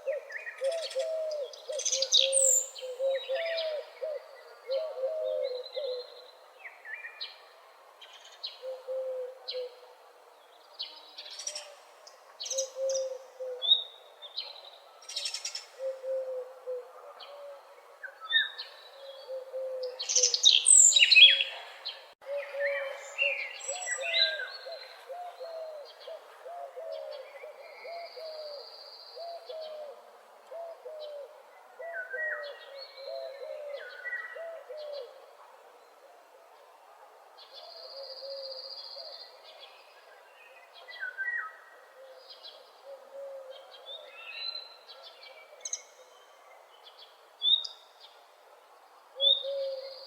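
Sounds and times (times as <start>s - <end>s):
songbirds chirping and trilling: 0.0s - 50.0s
bird hooting: 15.8s - 17.6s.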